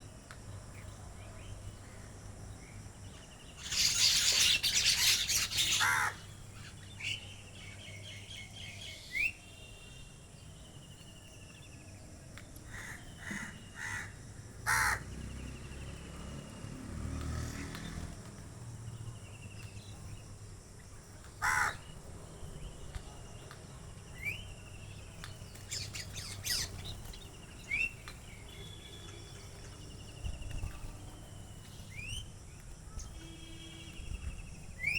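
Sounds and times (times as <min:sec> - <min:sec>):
bird chirps: 0:03.1 - 0:09.9, 0:24.1 - 0:32.3
harsh bird calls: 0:03.4 - 0:09.4, 0:21.4 - 0:22.0, 0:25.4 - 0:29.6.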